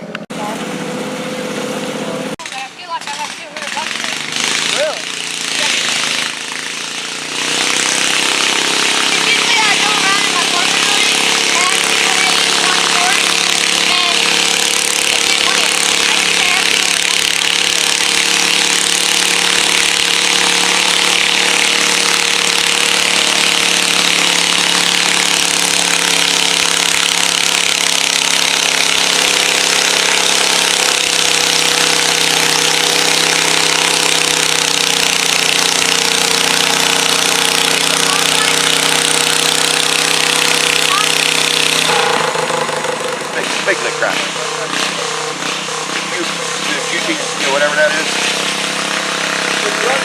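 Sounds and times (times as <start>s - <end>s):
garden tractor engine running: 0.0s - 50.0s.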